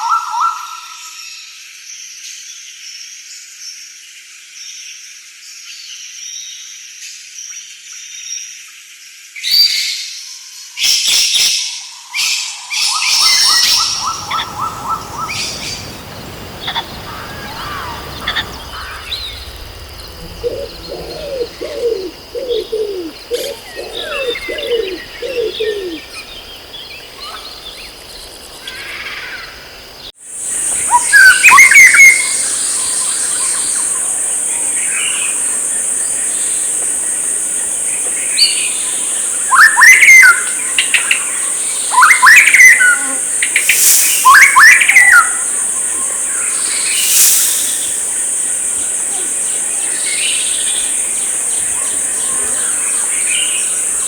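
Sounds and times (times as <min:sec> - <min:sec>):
birds chirping and singing: 0:13.1 - 0:54.0
high-pitched insect buzz: 0:13.2 - 0:54.0.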